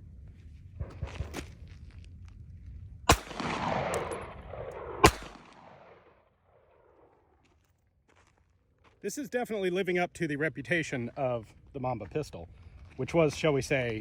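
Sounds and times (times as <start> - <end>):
pistol shots with echo: 3.1 - 6.2.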